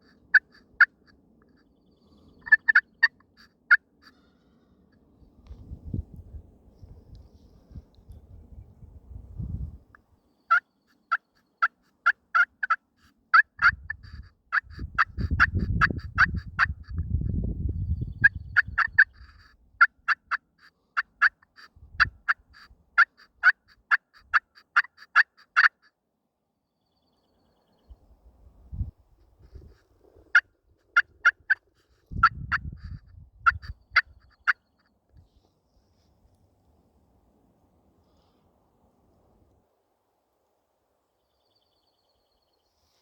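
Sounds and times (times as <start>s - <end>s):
wild turkey calling: 0.0s - 4.6s, 10.4s - 17.3s, 18.0s - 25.9s, 29.4s - 35.0s.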